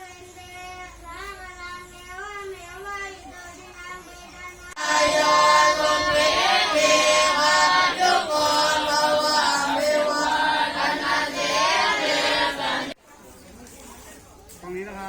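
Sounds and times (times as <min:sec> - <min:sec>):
group chanting in unison: 0:04.8 - 0:13.0.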